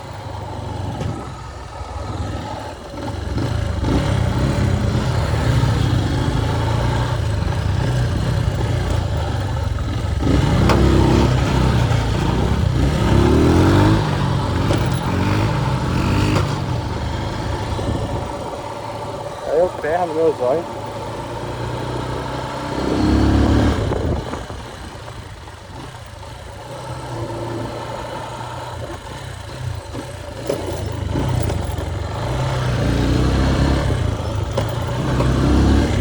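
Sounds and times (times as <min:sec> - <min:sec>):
motorcycle engine revving: 0:00.0 - 0:36.0
wind noise on microphone: 0:17.6 - 0:18.6, 0:23.4 - 0:25.4.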